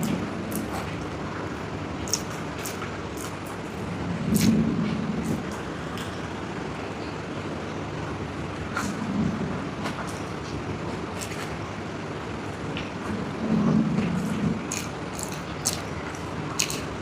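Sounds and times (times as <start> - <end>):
background hum: 0.0 - 17.0
close-up chewing: 14.2 - 17.0.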